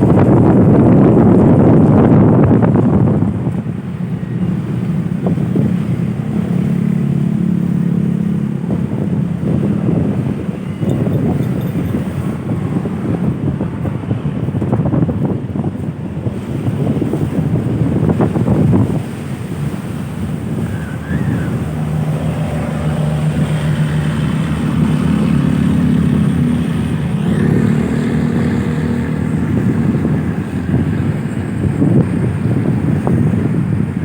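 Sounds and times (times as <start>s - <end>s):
wind buffeting microphone: 0.0s - 34.0s
engine droning: 18.1s - 33.6s.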